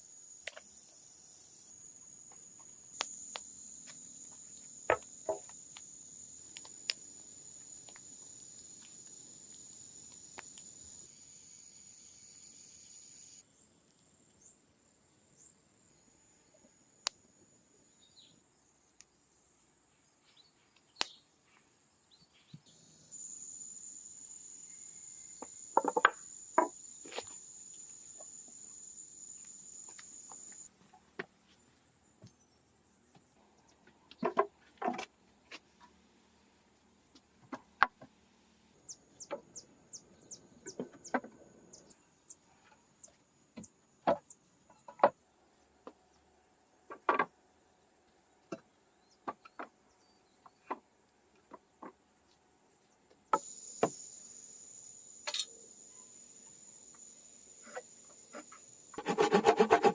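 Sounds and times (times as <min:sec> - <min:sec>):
insect trill: 0:00.0 - 0:13.7, 0:22.7 - 0:30.7, 0:53.3 - 0:59.9.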